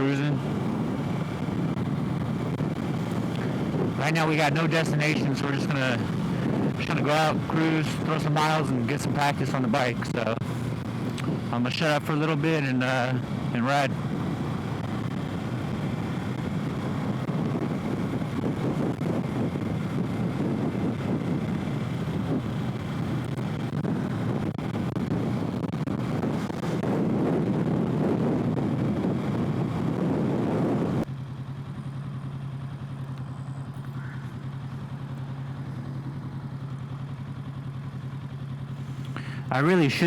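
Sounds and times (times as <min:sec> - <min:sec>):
wind rush: 0:00.0 - 0:31.1
motorcycle engine: 0:00.0 - 0:40.0.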